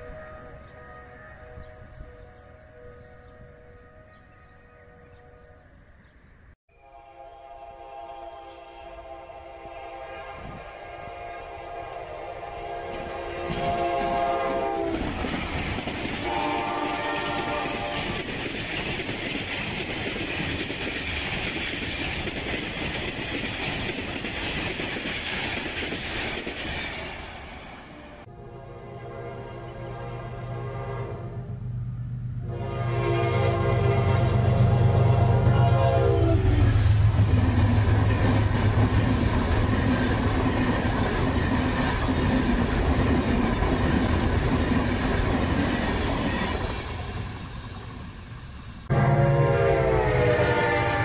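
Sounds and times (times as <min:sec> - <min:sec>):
train coaches rolling past: 0:00.0 - 0:51.0
wheels clickety-clack: 0:14.9 - 0:27.2.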